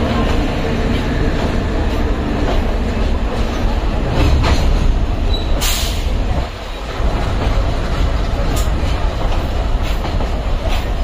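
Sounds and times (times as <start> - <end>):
rail joint clicks: 0.0 - 11.0
train wheels rumbling on rails: 0.0 - 11.0.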